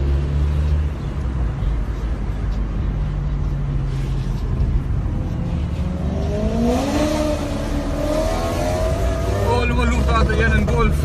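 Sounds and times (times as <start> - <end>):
car engine rumbling and revving: 0.0 - 11.0.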